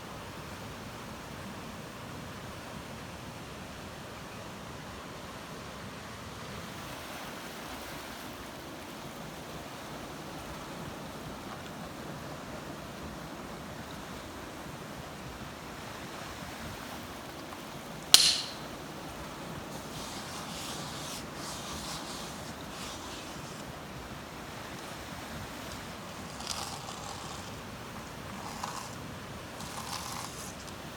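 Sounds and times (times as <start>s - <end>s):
sharp click: 18.1s - 18.7s.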